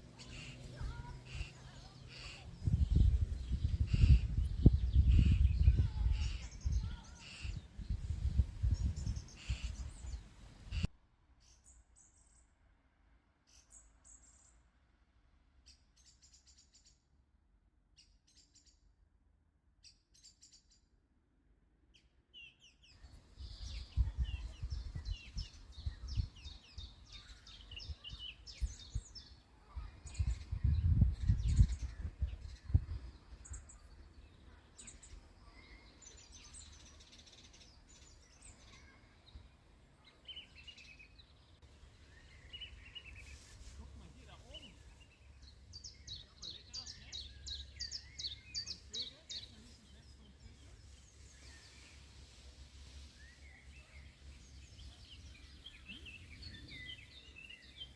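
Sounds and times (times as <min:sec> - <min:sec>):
small birds chirping: 0:00.0 - 0:12.7, 0:13.4 - 0:57.9
loud low rumble in gusts: 0:02.6 - 0:06.9.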